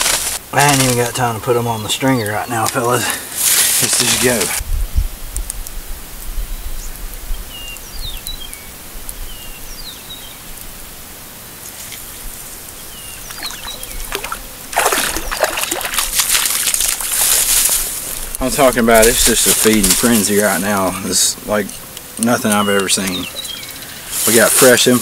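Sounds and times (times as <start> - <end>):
small birds chirping: 0.6 - 4.6, 6.3 - 10.7, 11.6 - 16.2, 17.1 - 25.0
water trickling into lake: 12.8 - 25.0
loud rushing splashing water: 13.3 - 17.7.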